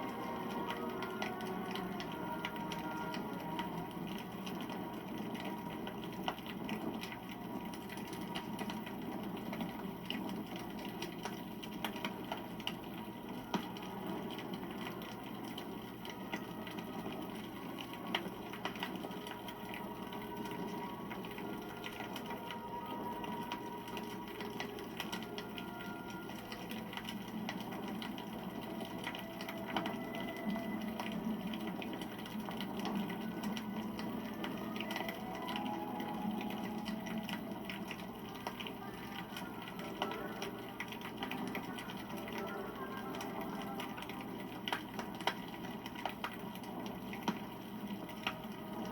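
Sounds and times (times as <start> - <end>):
fire crackling and popping: 0.0 - 48.9.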